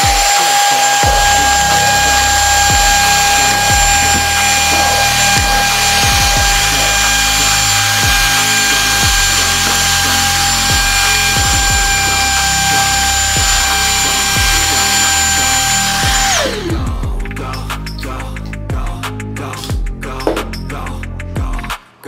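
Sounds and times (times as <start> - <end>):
handheld vacuum cleaner running: 0.0 - 17.2.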